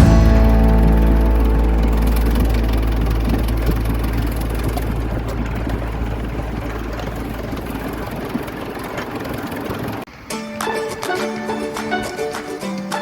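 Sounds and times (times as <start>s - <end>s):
miniature locomotive rumbling: 0.0s - 10.2s.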